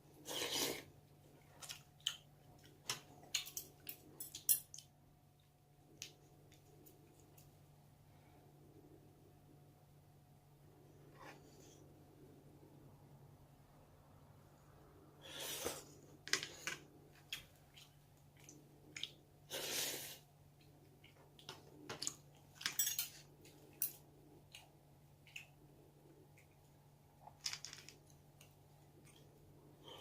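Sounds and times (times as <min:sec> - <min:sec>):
utensils clinking against dishes: 0:22.6 - 0:23.2.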